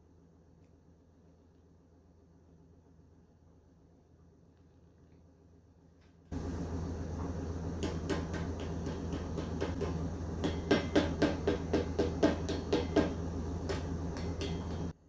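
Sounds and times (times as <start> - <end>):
electric mixer humming: 6.3 - 15.0
beaters clattering against bowl: 6.4 - 15.0.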